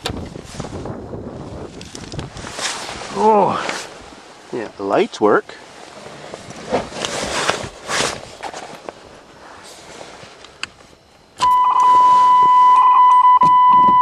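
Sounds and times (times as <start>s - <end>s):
rustling and handling noise: 1.5s - 4.9s, 5.6s - 11.3s
car warning buzzer tone: 11.4s - 14.0s.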